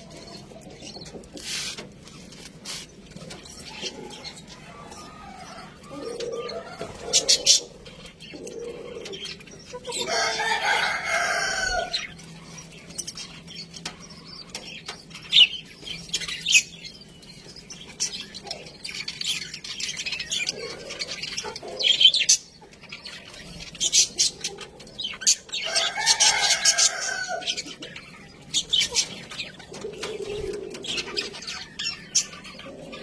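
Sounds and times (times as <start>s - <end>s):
budgerigars chirping and chattering: 0.0s - 33.0s.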